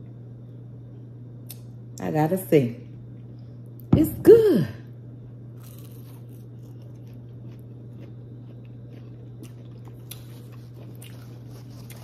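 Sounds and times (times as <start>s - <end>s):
steady low hum: 0.0s - 12.0s
person chewing crispy food: 5.5s - 12.0s.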